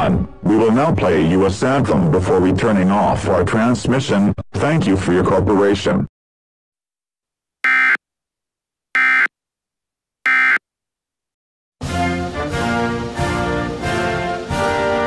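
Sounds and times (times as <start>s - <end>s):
electronic buzzer beeps: 7.6s - 8.0s, 9.0s - 9.3s, 10.3s - 10.6s
orchestral music with brass: 11.8s - 15.0s.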